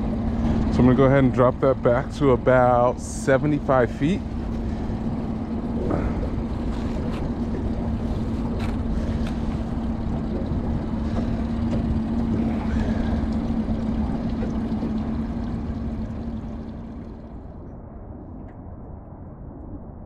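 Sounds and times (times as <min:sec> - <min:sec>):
boat motor running: 0:00.0 - 0:17.6
wind on microphone: 0:01.8 - 0:15.3.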